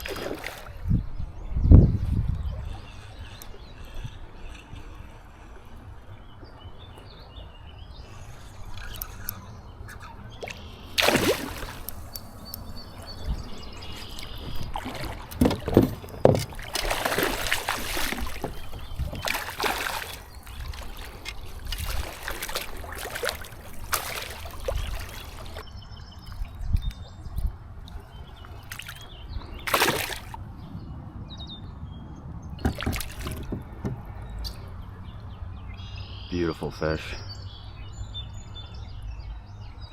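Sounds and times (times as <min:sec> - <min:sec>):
water splashing around kayak: 0:00.0 - 0:00.9, 0:10.3 - 0:30.4, 0:32.6 - 0:34.5.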